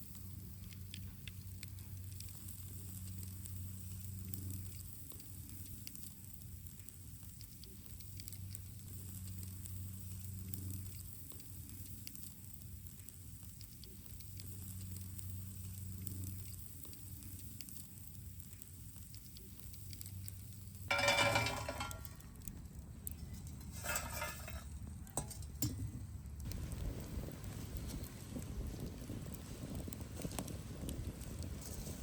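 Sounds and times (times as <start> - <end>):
faint fire crackles: 0.0 - 32.0
frying sizzle: 0.0 - 32.0.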